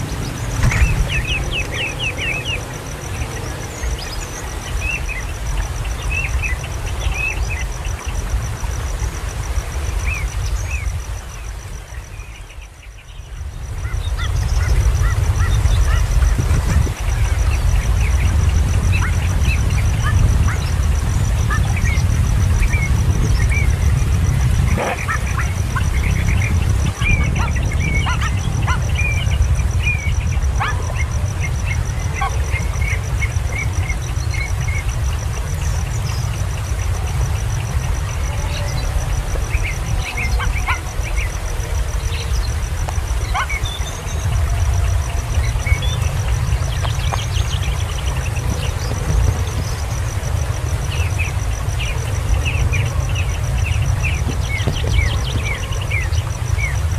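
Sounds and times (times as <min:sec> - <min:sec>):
low rumble: 0:00.0 - 0:04.6
birds chirping: 0:00.0 - 0:08.3, 0:10.0 - 0:56.8.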